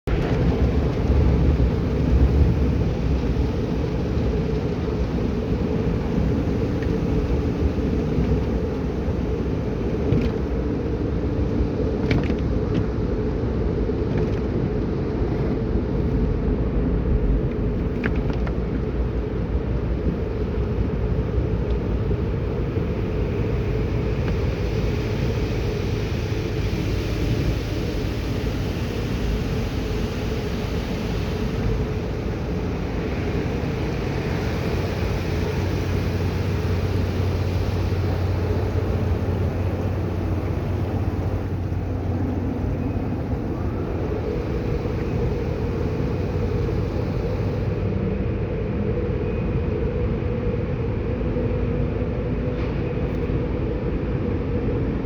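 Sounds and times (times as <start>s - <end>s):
car wash rumbling: 0.0s - 55.0s
hiss: 22.8s - 47.9s.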